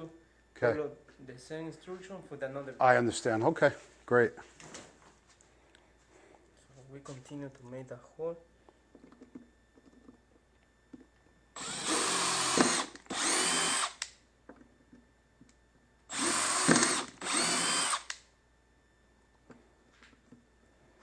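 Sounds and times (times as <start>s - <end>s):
power drill bursts: 11.6s - 14.0s, 16.1s - 18.2s.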